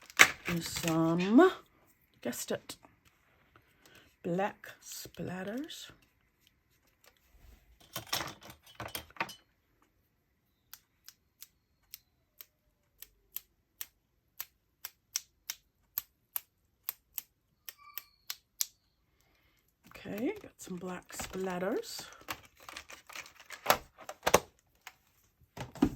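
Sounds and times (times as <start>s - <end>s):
handling noise: 20.6s - 25.9s.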